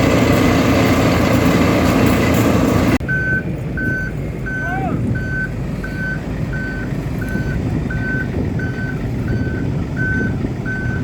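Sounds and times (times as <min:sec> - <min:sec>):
heavy engine rumble: 0:00.0 - 0:11.0
reversing alarm beeping: 0:03.0 - 0:11.0.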